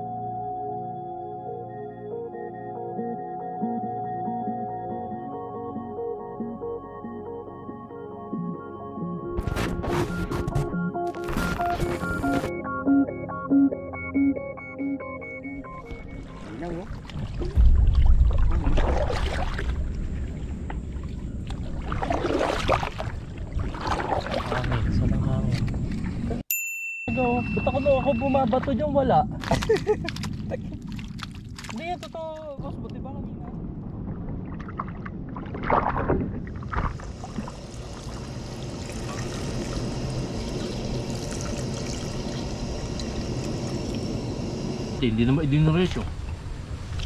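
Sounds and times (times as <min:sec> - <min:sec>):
paddle splashing in water: 0:15.9 - 0:24.9, 0:34.4 - 0:37.5
low steady rumble: 0:16.4 - 0:22.2.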